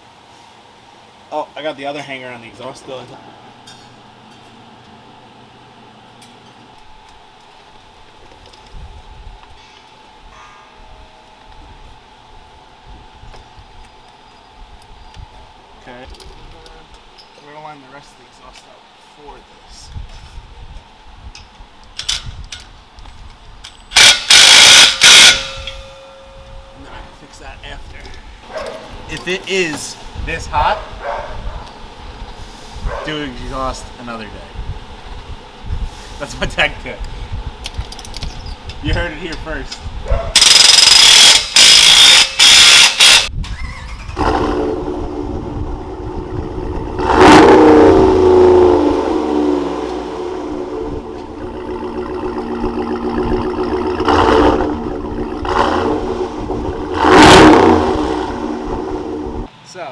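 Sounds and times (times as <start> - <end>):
power tool bursts: 23.9 - 26.1, 40.4 - 44.7, 47.0 - 59.4
engine revving: 24.0 - 25.6, 40.4 - 59.5
loud hissing bursts: 31.9 - 37.4, 40.4 - 44.0
pickup truck engine running: 44.6 - 59.5.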